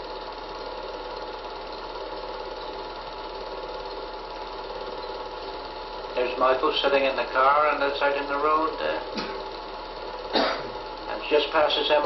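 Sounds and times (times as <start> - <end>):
low mains hum: 0.0 - 12.0.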